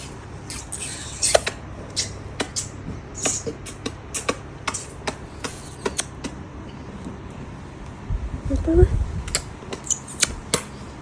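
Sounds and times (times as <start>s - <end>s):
baby clicking mouth: 1.2s - 6.4s.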